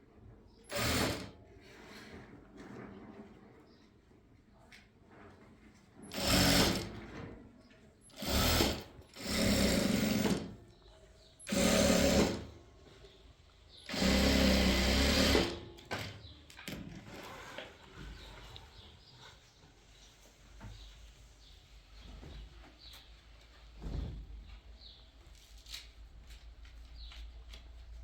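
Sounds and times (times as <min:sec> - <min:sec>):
sewing machine running: 0:00.7 - 0:01.4, 0:06.1 - 0:07.0, 0:08.2 - 0:10.6, 0:11.4 - 0:12.5, 0:13.9 - 0:16.1.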